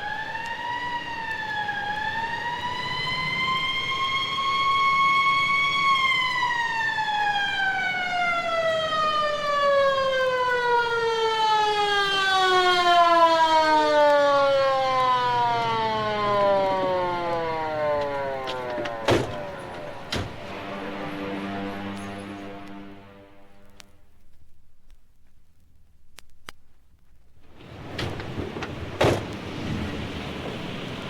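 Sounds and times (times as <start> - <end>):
siren winding down: 0.0 - 23.7
sharp clicks: 23.6 - 27.3.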